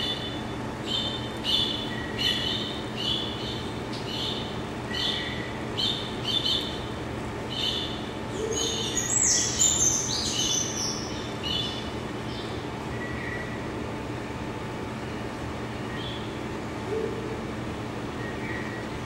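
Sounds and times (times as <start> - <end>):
birds chirping: 0.0 - 13.6
steady low hum: 0.0 - 19.0.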